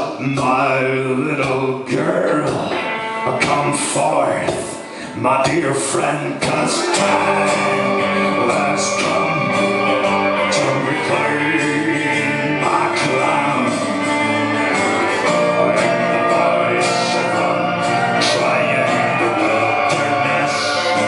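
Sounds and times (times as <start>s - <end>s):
live band music: 1.9s - 5.6s, 6.5s - 21.0s
voices singing in chorus: 6.2s - 21.0s.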